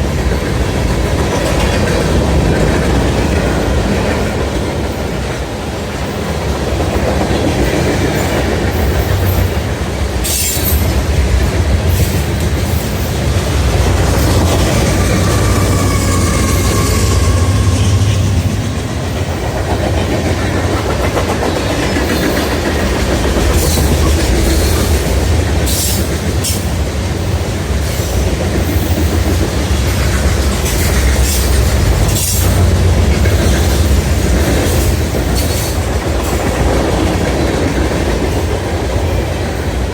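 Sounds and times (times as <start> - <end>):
freight train cars rumbling: 0.0 - 39.9
wheels clicking over rail joints: 0.0 - 39.9
faint wheel squeal: 14.7 - 18.3.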